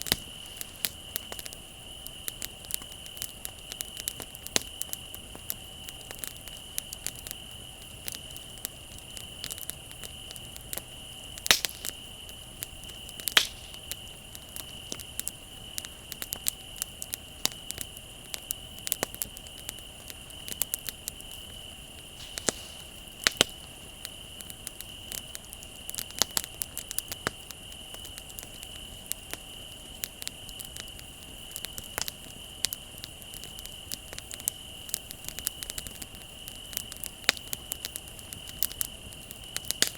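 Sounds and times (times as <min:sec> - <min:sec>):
bonfire crackling and popping: 0:00.0 - 0:39.9
crickets trilling: 0:00.0 - 0:39.9.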